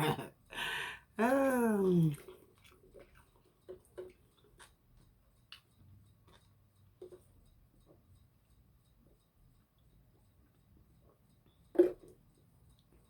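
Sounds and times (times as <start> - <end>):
mouth sounds of eating: 1.2 - 3.3.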